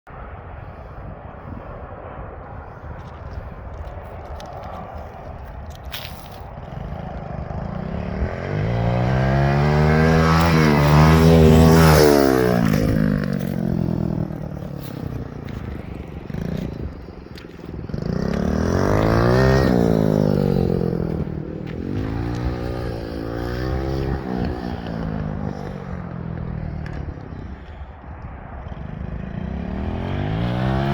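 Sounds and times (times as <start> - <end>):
dirt bike engine revving: 6.0 - 27.6, 28.8 - 30.9.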